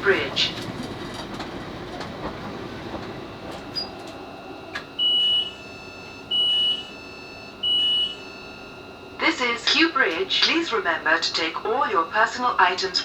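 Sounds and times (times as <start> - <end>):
train clicks: 0.0 - 4.9
electric train running: 0.0 - 5.2.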